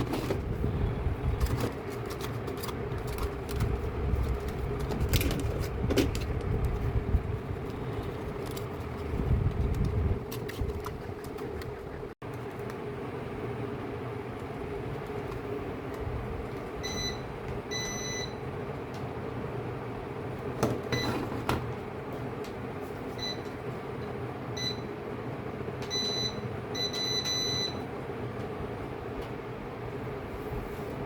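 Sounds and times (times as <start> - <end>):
steady hum: 0.0 - 20.6.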